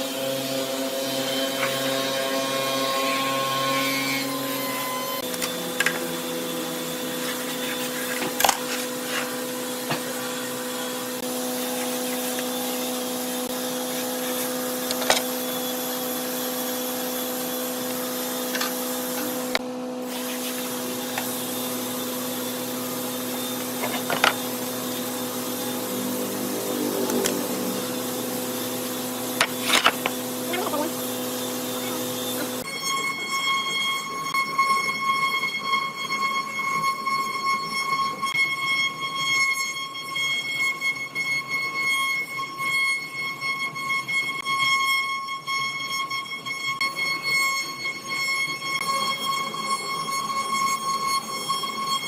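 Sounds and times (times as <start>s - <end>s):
woodworking machine motor humming: 0.0s - 32.7s.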